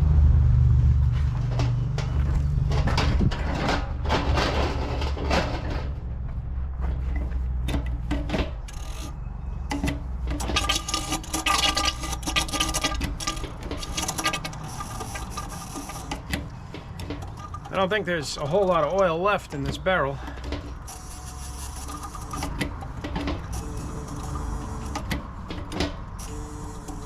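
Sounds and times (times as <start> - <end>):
low rumble: 0.0 - 7.2
hand pump scraping strokes: 7.2 - 27.0.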